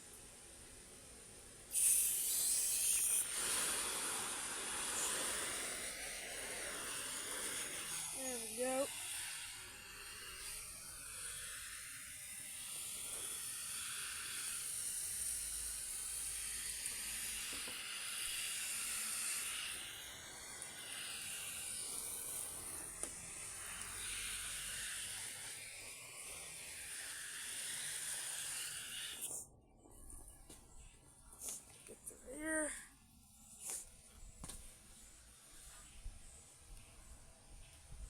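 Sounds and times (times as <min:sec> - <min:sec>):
water spraying hiss: 0:00.0 - 0:29.4.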